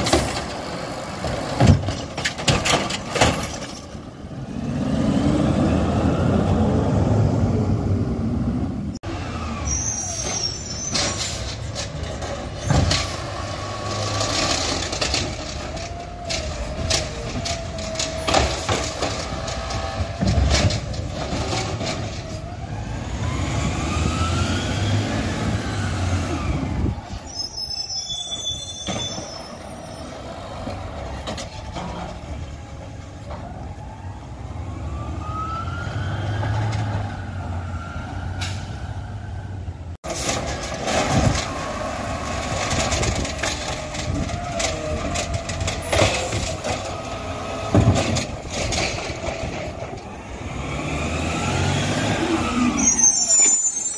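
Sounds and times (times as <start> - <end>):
diesel engines revving: 0.0 - 53.9
sharp bangs and knocks: 40.0 - 50.0.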